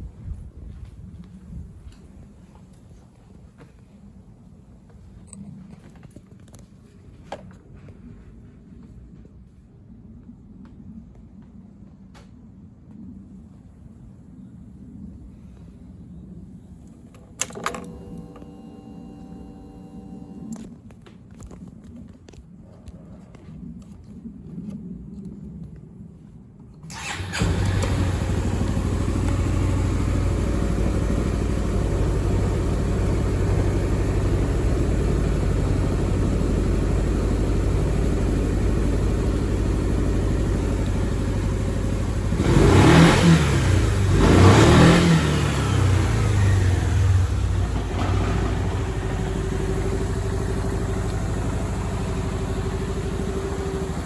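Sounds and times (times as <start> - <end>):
scooter engine starting and idling: 17.4 - 20.7, 26.9 - 54.0
scooter engine revving: 26.9 - 54.0.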